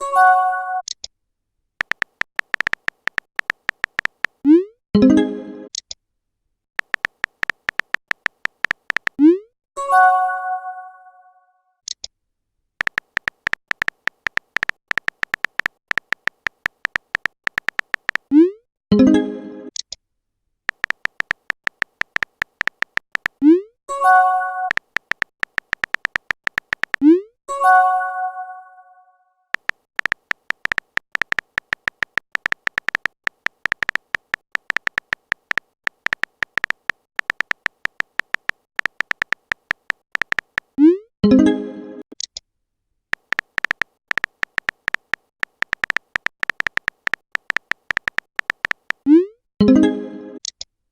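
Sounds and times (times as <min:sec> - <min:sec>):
electronic typing blips: 0:01.8 - 0:05.8, 0:06.8 - 0:09.5, 0:12.8 - 0:19.9, 0:20.7 - 0:27.3, 0:29.5 - 0:41.5, 0:43.1 - 0:49.8.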